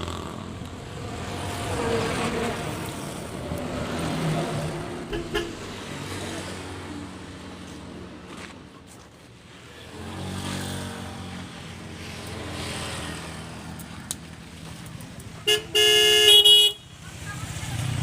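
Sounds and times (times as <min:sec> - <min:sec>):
vehicle horn: 0:05.1 - 0:05.8, 0:15.4 - 0:17.0.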